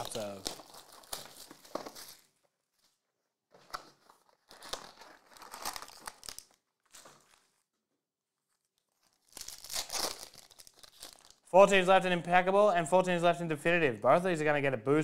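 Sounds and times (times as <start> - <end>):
card pack wrappers crinkling: 0.0 - 2.4, 3.8 - 7.6, 8.5 - 11.5.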